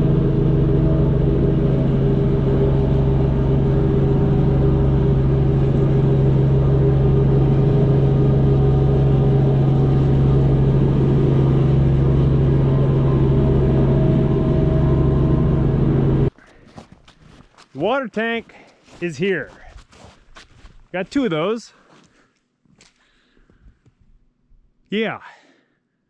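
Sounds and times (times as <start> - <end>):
engine droning steadily: 0.0 - 16.4.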